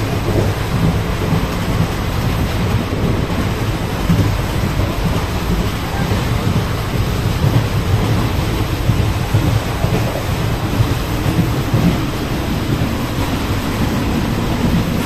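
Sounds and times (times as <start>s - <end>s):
train coach rumbling and rattling: 0.0s - 15.0s.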